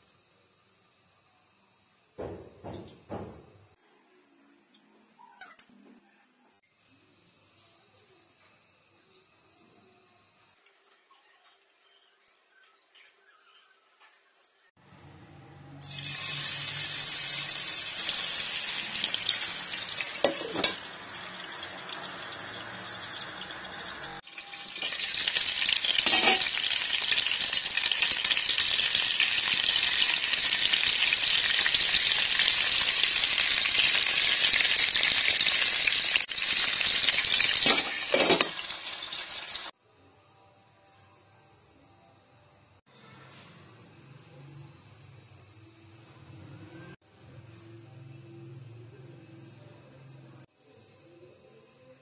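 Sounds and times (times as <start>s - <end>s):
skewers sizzling in hot oil: 15.8s - 39.8s
skewers handled in pan: 25.9s - 26.7s, 37.5s - 38.7s.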